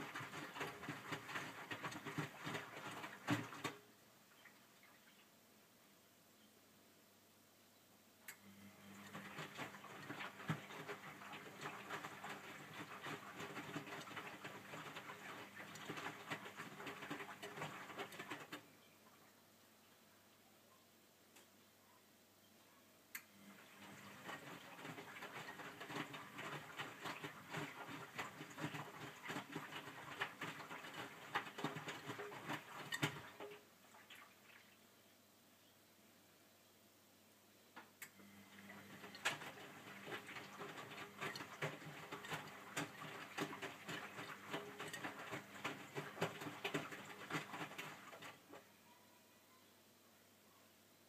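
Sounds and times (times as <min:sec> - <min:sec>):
laundry tumbling in drum: 0:00.0 - 0:03.8, 0:08.9 - 0:18.7, 0:23.6 - 0:34.2, 0:38.6 - 0:48.6
washing machine drum motor humming: 0:00.0 - 0:03.8, 0:08.5 - 0:18.7, 0:23.4 - 0:33.7, 0:38.2 - 0:48.6
washing machine drum turning: 0:38.8 - 0:48.4.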